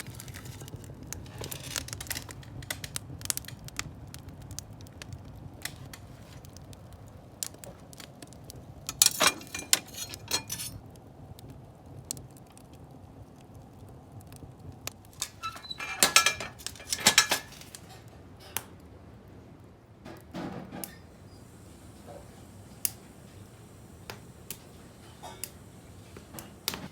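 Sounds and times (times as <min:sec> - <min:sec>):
wood fire crackling: 0:00.0 - 0:20.3, 0:21.0 - 0:26.9
clattering and clinking: 0:08.9 - 0:10.8, 0:15.2 - 0:18.0.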